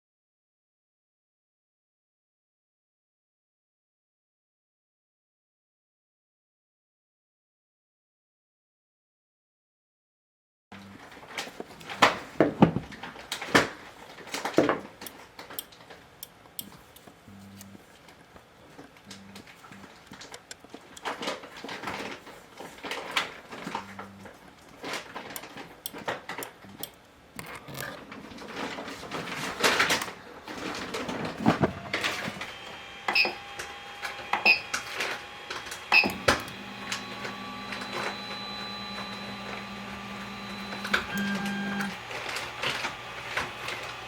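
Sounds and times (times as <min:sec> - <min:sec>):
stepper motors whining: 0:29.0 - 0:44.0.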